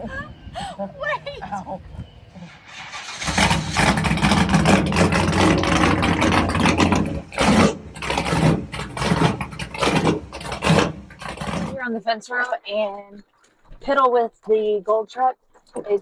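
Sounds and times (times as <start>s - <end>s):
vehicle engine starting and running: 0.0s - 12.0s.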